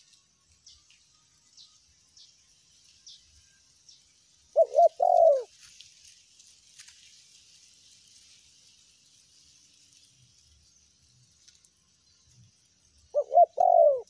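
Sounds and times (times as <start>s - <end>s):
dove cooing: 4.5s - 5.6s, 13.1s - 14.0s.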